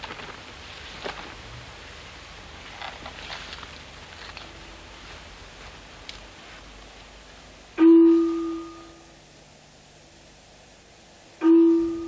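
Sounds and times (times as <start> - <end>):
bell ringing: 7.8 - 9.1, 11.4 - 12.0.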